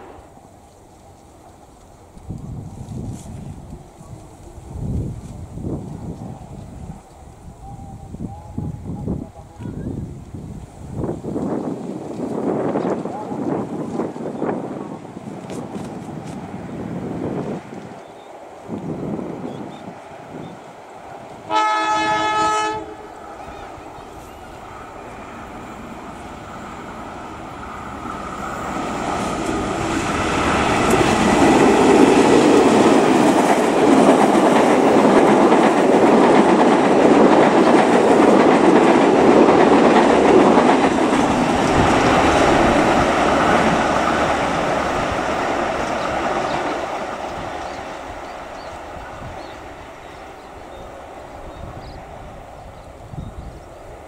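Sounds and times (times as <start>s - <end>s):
train engine and wheel noise: 0.0s - 54.0s
train horn blast: 21.4s - 24.4s.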